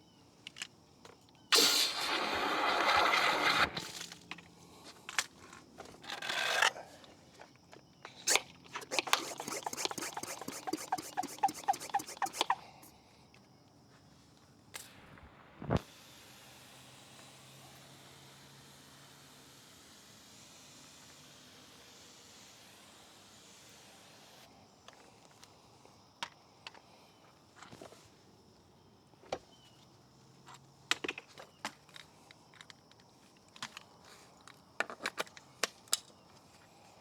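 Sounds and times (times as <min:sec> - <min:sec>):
hissing spray bursts: 0:01.5 - 0:03.5, 0:08.3 - 0:12.9, 0:15.8 - 0:24.5
wet brush scrubbing squeakily: 0:08.3 - 0:12.8.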